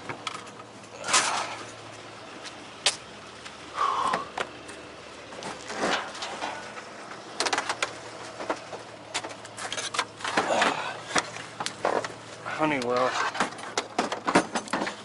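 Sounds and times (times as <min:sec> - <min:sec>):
objects clattering in a dumpster: 0:00.0 - 0:01.8, 0:05.3 - 0:15.0.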